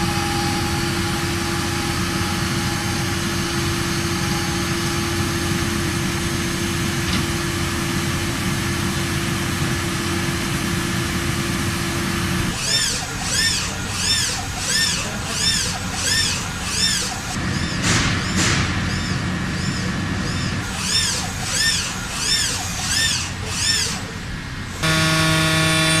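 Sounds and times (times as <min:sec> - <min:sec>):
industrial machinery humming: 0:00.0 - 0:26.0
rhythmic whirring: 0:12.4 - 0:26.0.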